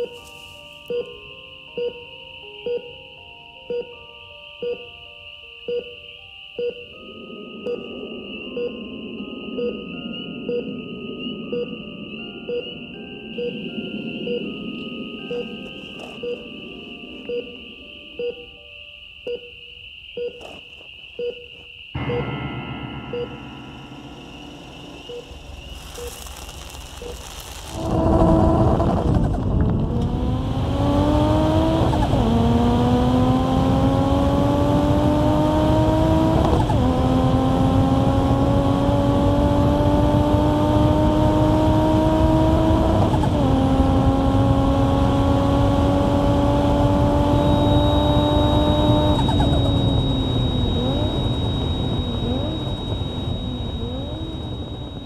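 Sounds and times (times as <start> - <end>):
car engine accelerating and shifting: 27.8 - 55.0.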